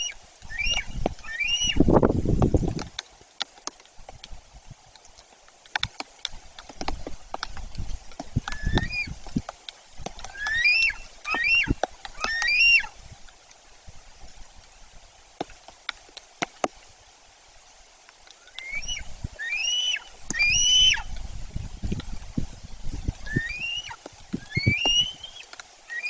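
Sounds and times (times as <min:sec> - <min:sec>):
eagle yelping calls: 0:00.0 - 0:01.8, 0:08.5 - 0:09.2, 0:10.3 - 0:13.0, 0:18.5 - 0:21.1, 0:23.2 - 0:26.0.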